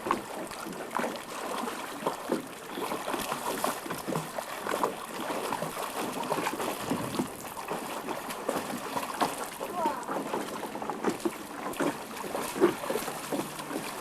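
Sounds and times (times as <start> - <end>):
water splashing and lapping: 0.0 - 14.0.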